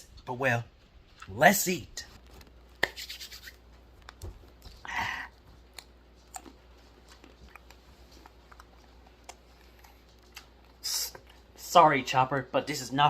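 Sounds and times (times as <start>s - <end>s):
almonds crunching while chewed: 5.4s - 11.6s.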